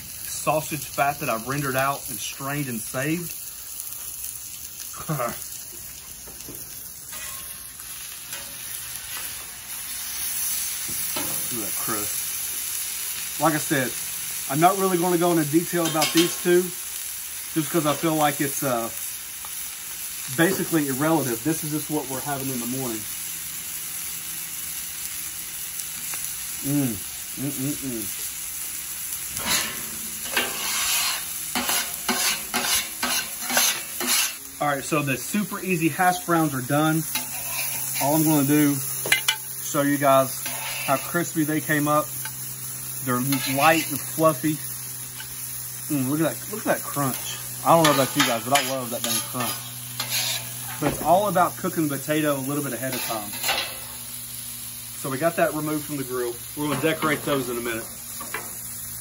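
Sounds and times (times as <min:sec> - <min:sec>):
meat sizzling on a griddle: 0:00.0 - 0:59.0
sharp scraping strokes: 0:29.4 - 0:34.4, 0:37.1 - 0:38.5, 0:40.3 - 0:41.3, 0:47.1 - 0:50.9.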